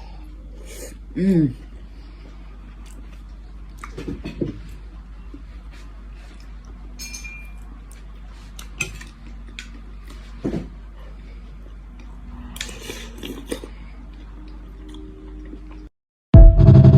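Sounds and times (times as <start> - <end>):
steady low hum: 0.0 - 16.9
cutlery clinking against dish: 7.0 - 7.6.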